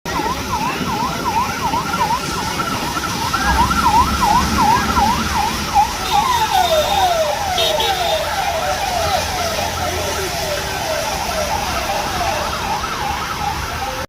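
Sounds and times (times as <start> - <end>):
electronic siren yelping: 0.1 - 14.0
heavy rain hissing: 0.1 - 14.0.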